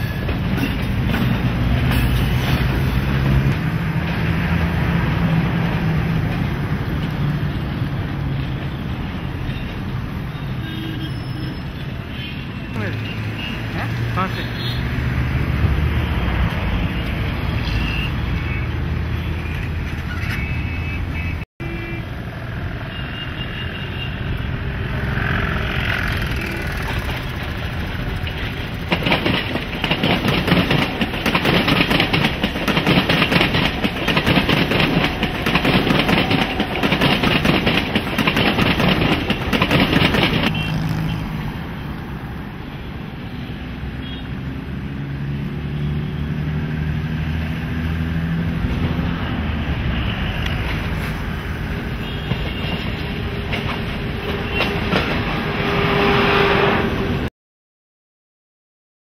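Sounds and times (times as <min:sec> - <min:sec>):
train wheels clattering over rail joints: 0:00.0 - 0:04.3, 0:26.0 - 0:40.5, 0:52.2 - 0:55.5
city rumble: 0:00.0 - 0:57.3.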